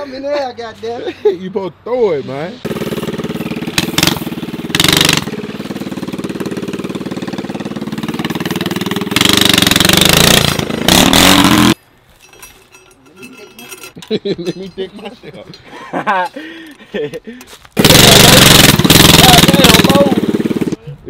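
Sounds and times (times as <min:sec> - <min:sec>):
motorbike engine idling and revving: 0:02.6 - 0:11.8, 0:17.8 - 0:20.8.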